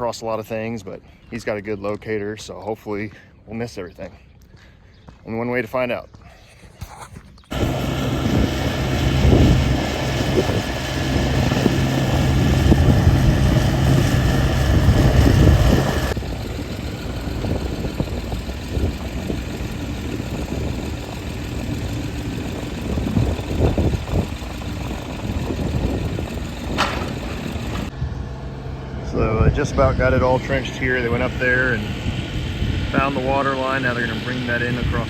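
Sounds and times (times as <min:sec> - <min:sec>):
trenching machine engine: 0:07.5 - 0:27.9.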